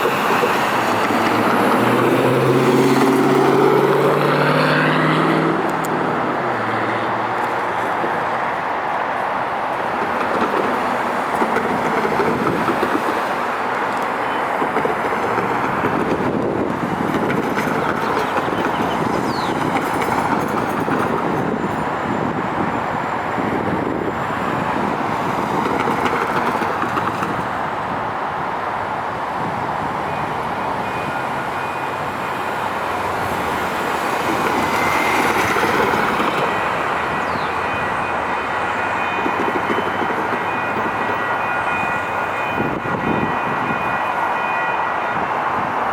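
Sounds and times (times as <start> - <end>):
train wheels on rails: 0.0 - 45.9.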